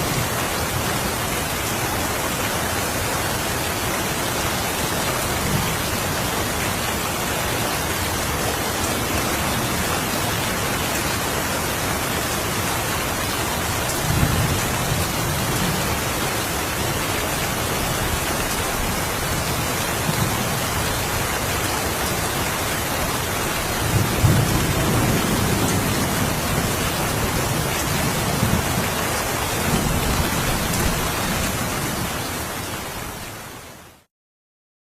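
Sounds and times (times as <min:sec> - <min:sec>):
steady rain: 0:00.0 - 0:34.1
thunder rolling: 0:23.8 - 0:28.9.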